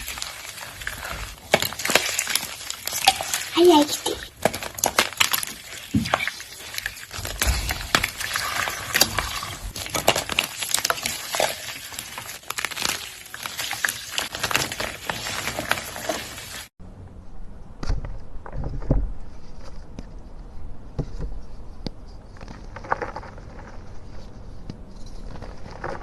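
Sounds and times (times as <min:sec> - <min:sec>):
baking soda being crushed: 0:00.0 - 0:16.7.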